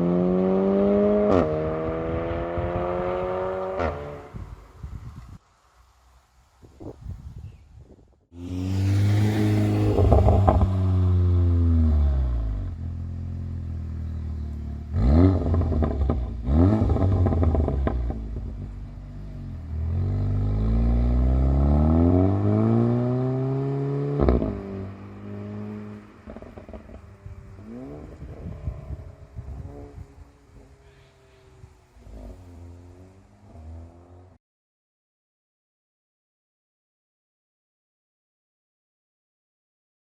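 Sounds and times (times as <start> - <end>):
car engine revving: 8.4 - 34.4
exhaust pops and crackles: 9.9 - 10.8.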